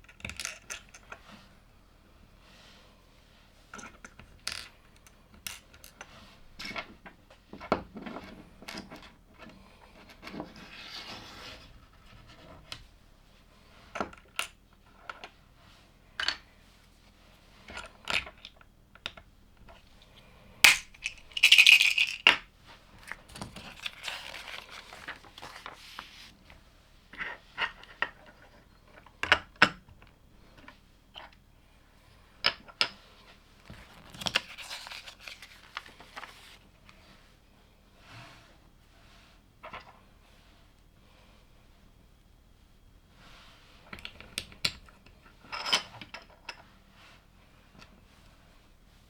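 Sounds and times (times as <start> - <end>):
plastic toy bricks clicking: 20.6 - 22.4.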